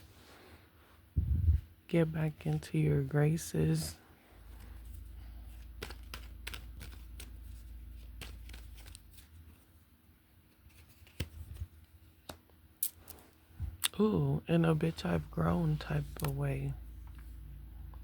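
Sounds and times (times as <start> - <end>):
low hum: 1.1 - 1.7
cards being shuffled: 4.4 - 9.8, 10.5 - 13.4, 15.6 - 17.3.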